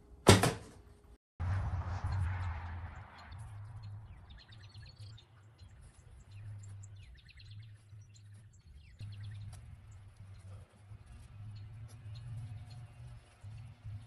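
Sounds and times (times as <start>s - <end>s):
low rumble: 1.4s - 8.1s
faint songbird chirps: 3.0s - 14.0s.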